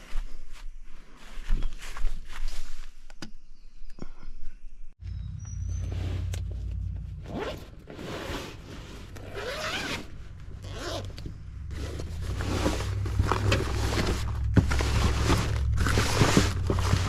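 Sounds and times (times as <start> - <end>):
zipper rasping: 7.2 - 17.0.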